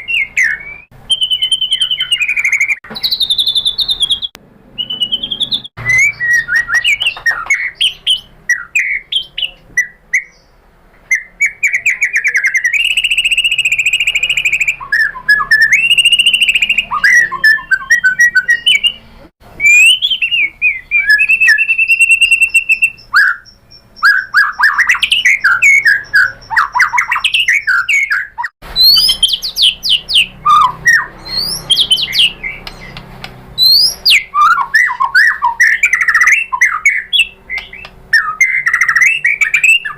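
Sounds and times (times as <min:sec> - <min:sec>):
songbird whistles and trills: 0:00.0 - 0:39.9.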